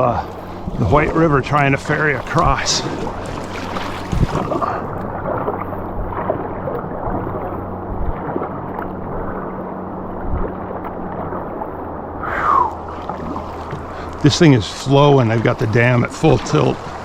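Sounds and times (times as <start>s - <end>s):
river current rushing: 0.0s - 6.5s, 12.1s - 17.0s
paddle knocking against hull: 0.3s - 6.4s.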